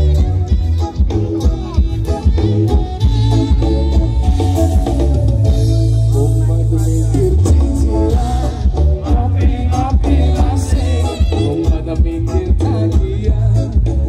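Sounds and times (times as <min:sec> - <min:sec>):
live band music with bass: 0:00.0 - 0:14.0
person singing: 0:05.9 - 0:14.0.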